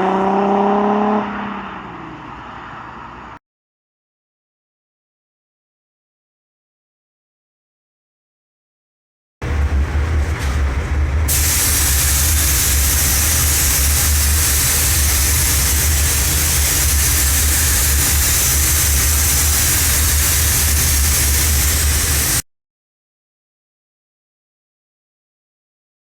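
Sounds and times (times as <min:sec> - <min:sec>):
diesel engine droning: 0:09.4 - 0:22.4
hiss: 0:11.3 - 0:22.4.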